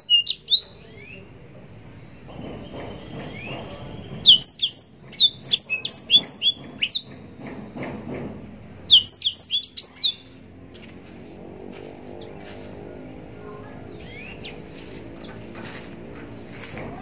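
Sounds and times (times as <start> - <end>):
bird singing whistled notes: 0.0 - 1.3, 2.7 - 7.1, 8.9 - 10.3, 14.0 - 14.6.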